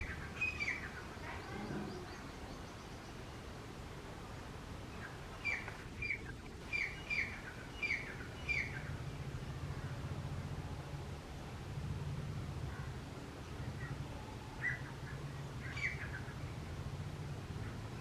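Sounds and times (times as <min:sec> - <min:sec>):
francolin calling: 0:00.0 - 0:02.3.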